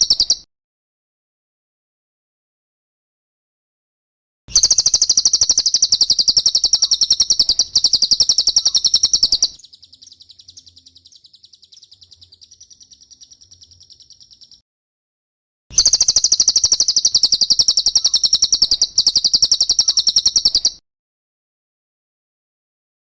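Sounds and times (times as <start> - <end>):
high-pitched bird trill: 0.0 - 0.5, 4.5 - 14.6, 15.7 - 20.8.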